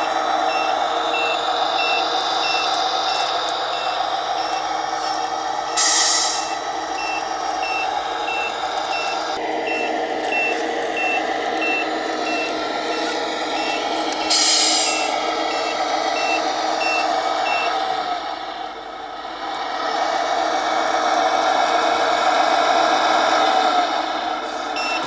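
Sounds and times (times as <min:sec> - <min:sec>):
reversing beeper: 0:00.0 - 0:17.8, 0:24.8 - 0:25.0
simulated truck engine running: 0:00.0 - 0:25.0
air-brake hiss: 0:05.8 - 0:06.6, 0:14.2 - 0:15.2.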